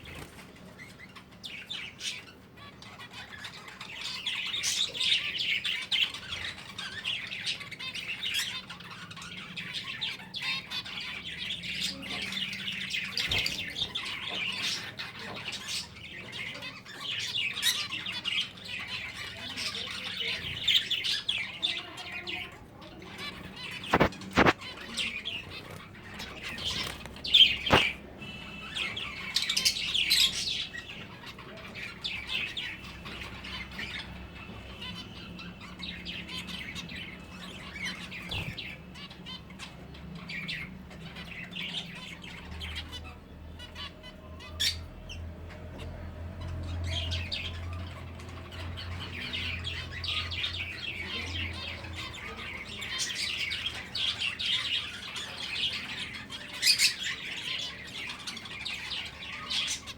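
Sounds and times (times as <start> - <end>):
finches chirping: 0.0 - 59.9.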